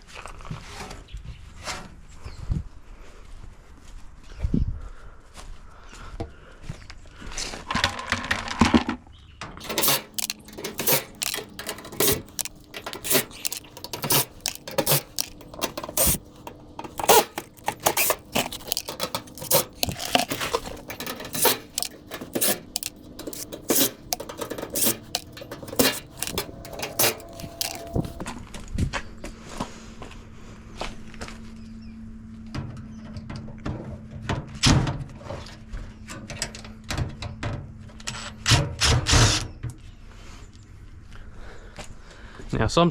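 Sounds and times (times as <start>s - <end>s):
metal parts clinking and clattering: 9.6s - 28.2s.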